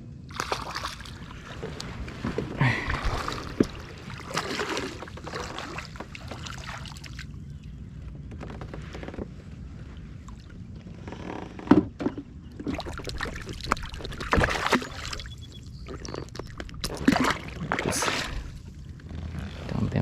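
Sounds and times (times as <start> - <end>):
water sloshing: 0.3 - 7.7, 12.5 - 19.6
knocks and clatters of fishing gear: 1.6 - 6.4, 11.2 - 18.0.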